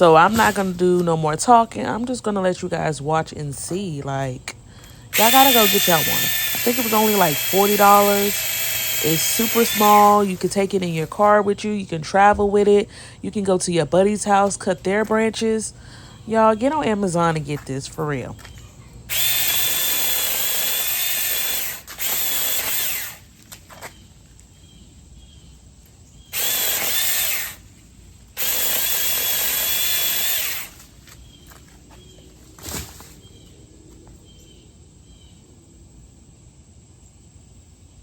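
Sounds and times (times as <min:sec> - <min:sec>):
electric chainsaw cutting branches: 0:00.0 - 0:02.2, 0:05.1 - 0:11.6, 0:19.1 - 0:23.5, 0:26.3 - 0:31.0
insects chirping: 0:00.2 - 0:11.2, 0:18.2 - 0:32.3.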